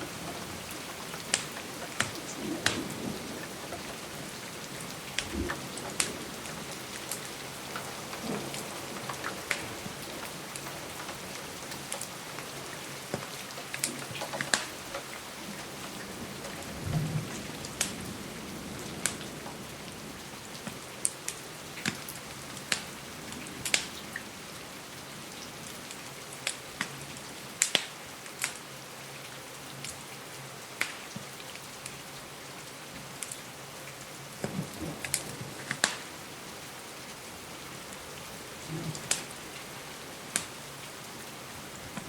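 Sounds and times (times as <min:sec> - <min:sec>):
wood fire crackling: 0:00.0 - 0:16.7, 0:20.6 - 0:24.0, 0:30.8 - 0:32.0, 0:33.0 - 0:42.0
steady rain: 0:00.0 - 0:42.0.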